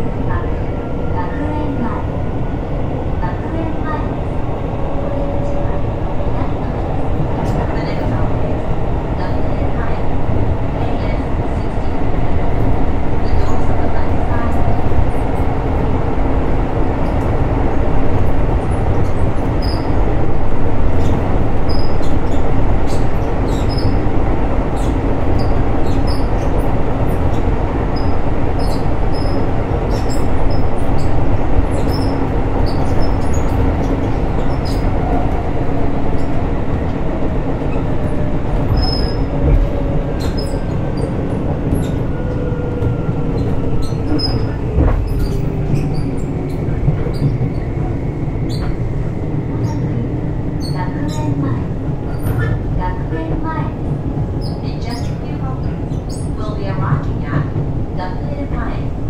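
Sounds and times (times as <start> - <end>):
wheels rumbling on rail: 0.0 - 59.0.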